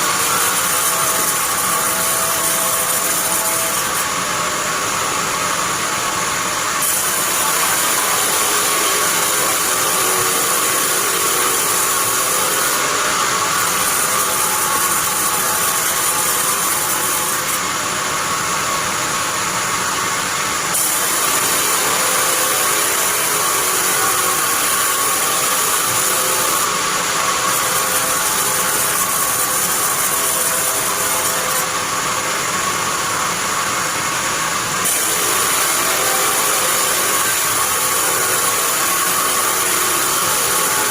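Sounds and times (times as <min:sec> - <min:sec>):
band saw blade sawing wood: 0:06.8 - 0:17.6, 0:20.7 - 0:31.7, 0:34.8 - 0:40.9.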